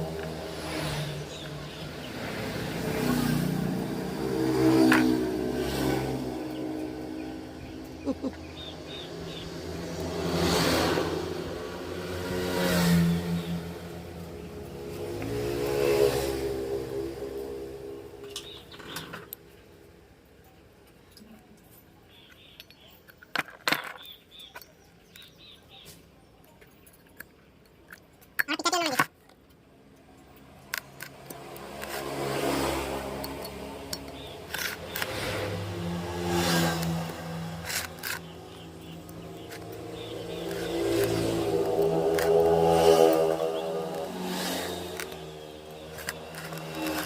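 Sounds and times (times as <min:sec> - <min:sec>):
vehicle engine revving: 0:00.0 - 0:19.0, 0:30.7 - 0:47.0.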